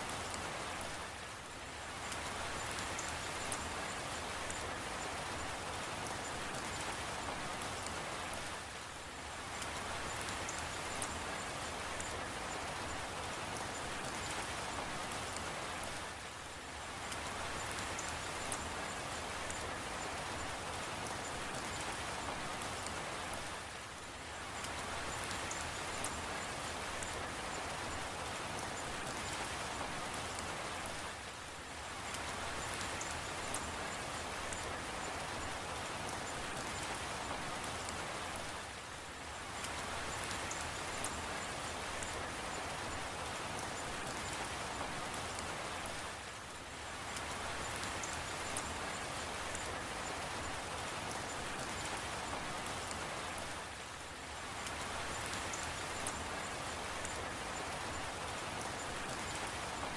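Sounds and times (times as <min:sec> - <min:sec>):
rain falling on a surface: 0:00.0 - 0:59.9
sharp raindrop ticks: 0:00.1 - 0:01.0, 0:09.5 - 0:16.0, 0:17.0 - 0:23.6, 0:39.5 - 0:46.1, 0:54.6 - 0:59.9.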